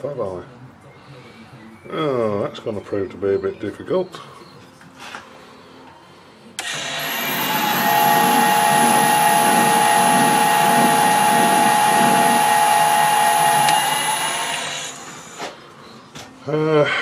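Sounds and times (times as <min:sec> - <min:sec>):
metal lathe motor running: 0:06.6 - 0:15.6.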